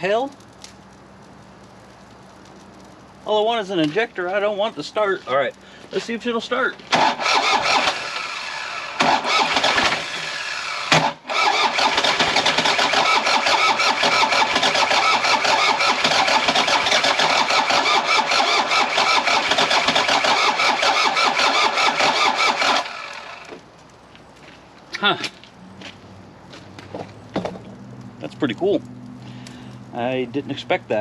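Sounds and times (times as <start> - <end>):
diesel engine cranking on starter: 6.9 - 23.6.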